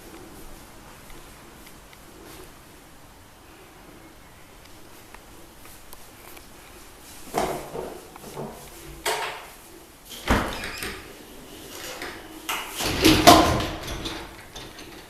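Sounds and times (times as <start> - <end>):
door rattles: 10.1 - 15.0.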